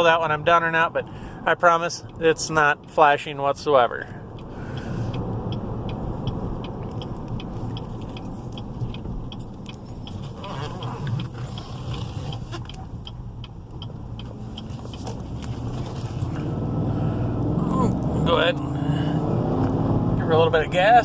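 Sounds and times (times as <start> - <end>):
car engine and road noise: 0.0 - 21.0
faint light ticking: 4.2 - 10.4, 11.0 - 16.1.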